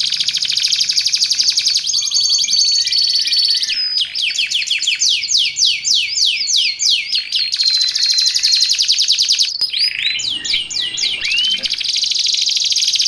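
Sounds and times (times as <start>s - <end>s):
canary singing: 9.6s - 12.0s.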